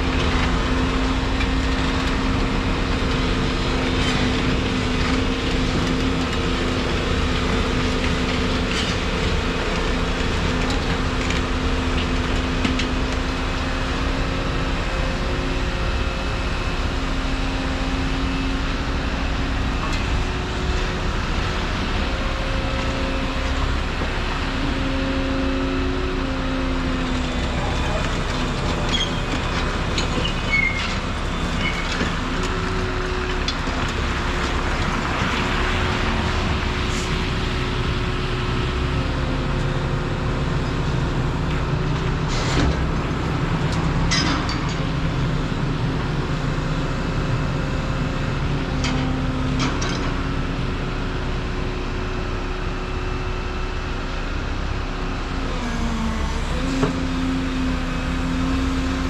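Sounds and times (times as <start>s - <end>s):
excavator engine and hydraulics: 0.0s - 59.0s.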